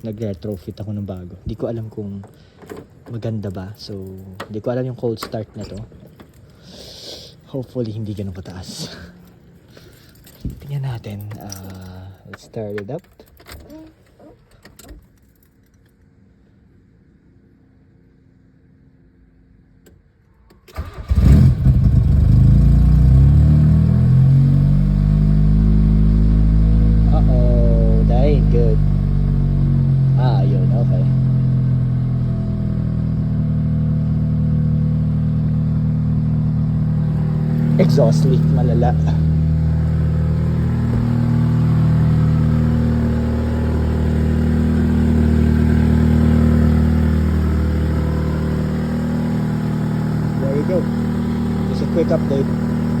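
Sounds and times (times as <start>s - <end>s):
car engine starting and idling: 19.7s - 53.0s.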